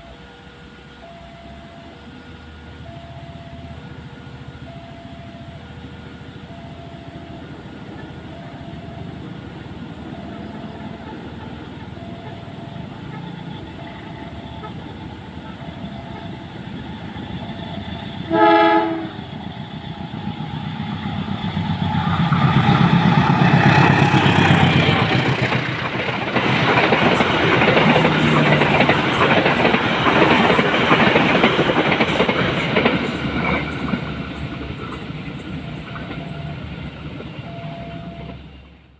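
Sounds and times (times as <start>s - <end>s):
locomotive rumble: 0.0s - 38.9s
loud train horn blast: 18.3s - 19.3s
wheels clattering over rail joints: 19.5s - 37.5s.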